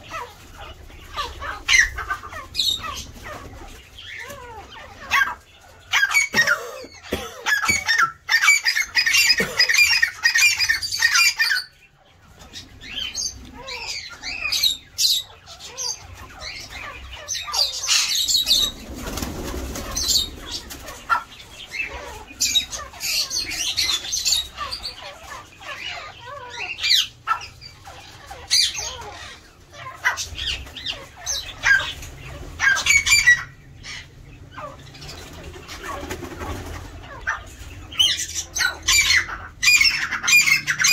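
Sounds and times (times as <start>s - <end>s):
birds chirping and squawking: 0.0s - 40.9s
wings flapping: 18.3s - 21.4s, 35.0s - 37.6s.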